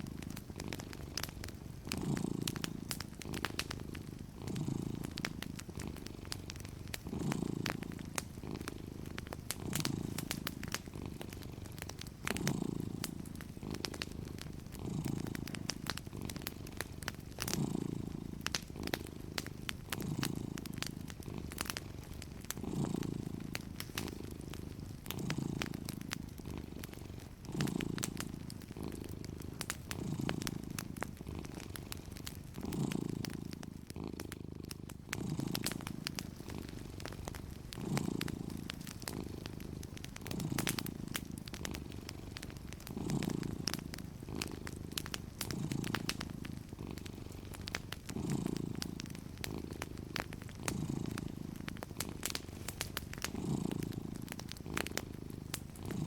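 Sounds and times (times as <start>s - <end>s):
cat purring: 0.0s - 56.0s
fireplace crackling and popping: 0.0s - 56.0s.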